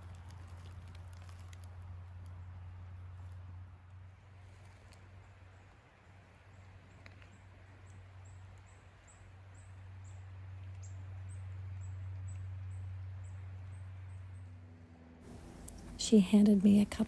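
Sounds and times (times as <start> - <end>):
low steady hum: 7.9 - 17.0.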